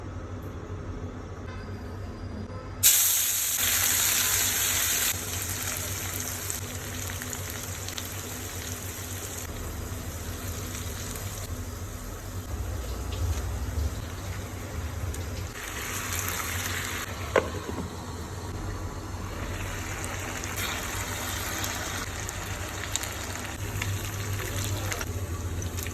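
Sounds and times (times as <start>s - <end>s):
food sizzling in hot oil: 2.8s - 25.9s.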